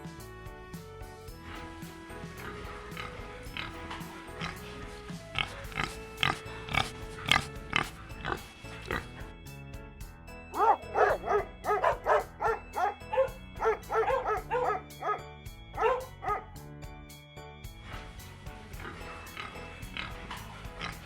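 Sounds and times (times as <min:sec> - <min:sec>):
background music: 0:00.0 - 0:21.0
dog barking: 0:10.6 - 0:15.2, 0:15.8 - 0:16.5.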